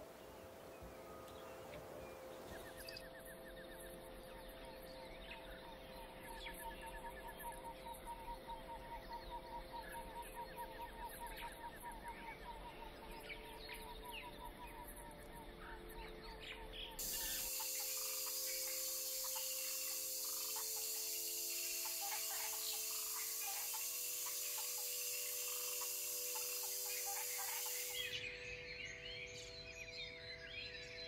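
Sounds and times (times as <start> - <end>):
faint forest background: 0.0 - 31.0
birds calling: 16.5 - 29.6
bird trills: 16.8 - 29.4.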